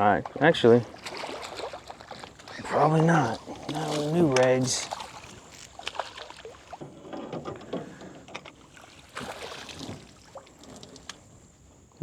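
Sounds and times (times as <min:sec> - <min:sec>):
fish being handled knocks and rustles: 0:03.5 - 0:08.6.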